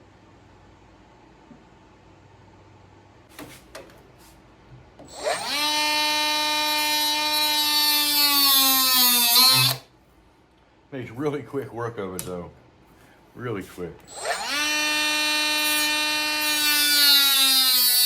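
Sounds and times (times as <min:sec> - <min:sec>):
power tool cutting wood: 0:05.1 - 0:09.9, 0:14.1 - 0:18.0.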